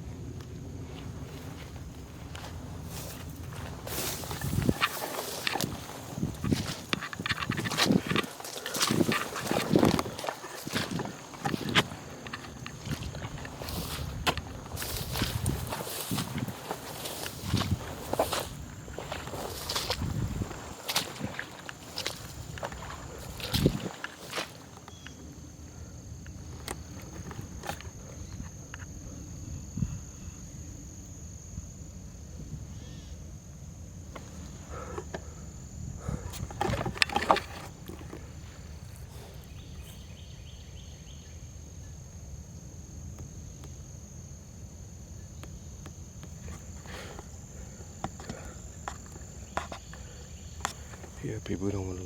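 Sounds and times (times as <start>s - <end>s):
insects buzzing: 0.0s - 52.0s
footsteps crunching through brush: 0.4s - 25.2s.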